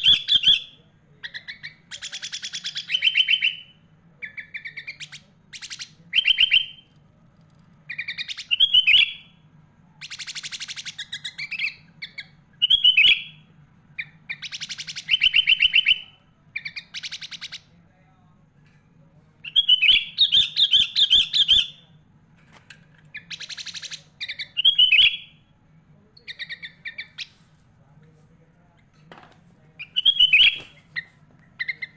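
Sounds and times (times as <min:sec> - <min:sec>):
bird chattering trills: 0:00.0 - 0:06.9, 0:07.9 - 0:09.4, 0:10.0 - 0:17.7, 0:19.4 - 0:21.9, 0:22.9 - 0:25.4, 0:26.2 - 0:27.4, 0:29.8 - 0:31.9.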